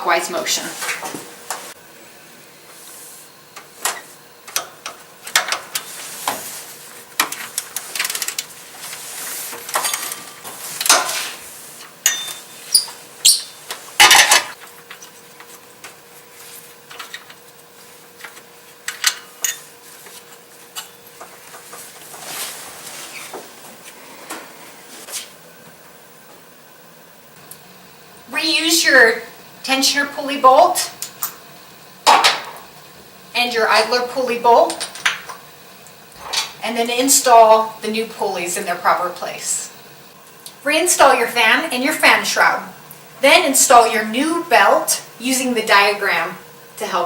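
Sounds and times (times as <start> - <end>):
hand tools clinking on metal: 12.0 - 12.5.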